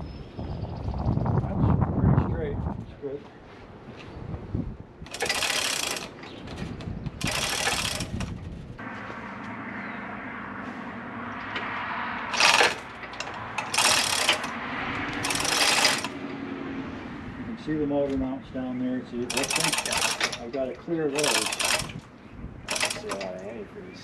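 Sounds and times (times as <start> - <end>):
ratchet clicking: 5.1 - 6.1, 7.2 - 8.2, 12.3 - 16.2, 19.3 - 20.5, 21.2 - 22.0, 22.7 - 23.3.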